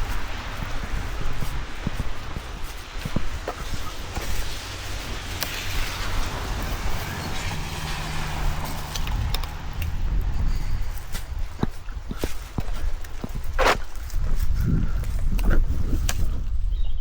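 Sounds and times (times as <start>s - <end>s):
tyre hiss on wet road: 0.0s - 11.6s
low engine hum: 0.0s - 13.6s.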